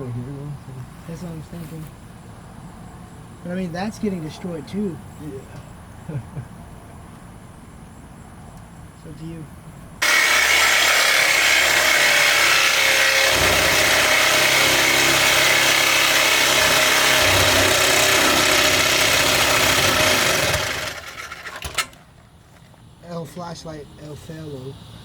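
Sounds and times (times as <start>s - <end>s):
power tool cutting steel pipe: 10.0s - 22.0s.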